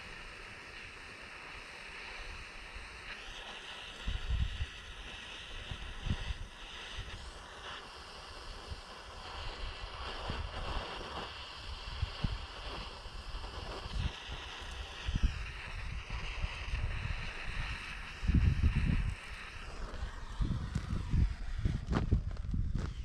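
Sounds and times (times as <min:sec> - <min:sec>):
handheld torch hissing: 0:00.0 - 0:23.0
wind buffeting microphone: 0:04.0 - 0:04.8, 0:11.8 - 0:23.0.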